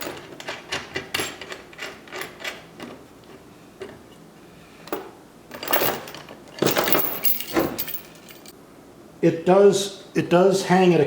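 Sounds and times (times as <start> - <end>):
steel chain and bolts clinking: 0.0 - 2.7, 4.9 - 8.6.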